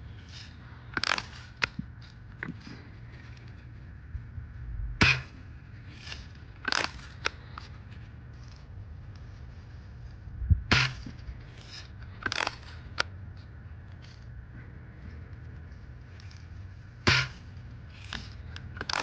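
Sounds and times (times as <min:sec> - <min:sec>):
air rifle shots: 0:05.0 - 0:05.4, 0:10.7 - 0:11.2, 0:17.0 - 0:17.5.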